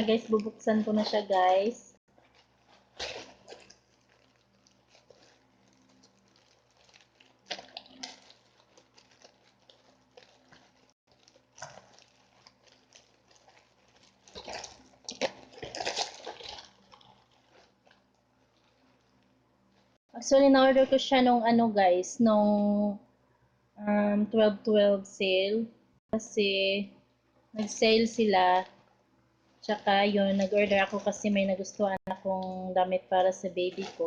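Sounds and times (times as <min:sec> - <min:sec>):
packaging rustling and tearing: 0:00.0 - 0:19.2, 0:33.7 - 0:34.0.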